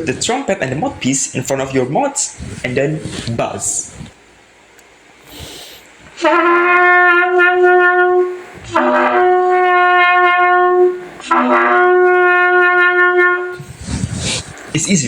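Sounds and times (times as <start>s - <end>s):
trumpet long held notes: 6.1s - 13.7s.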